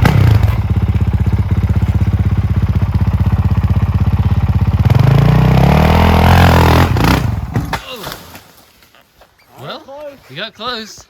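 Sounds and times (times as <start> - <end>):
motorcycle engine idling: 0.0 - 7.6.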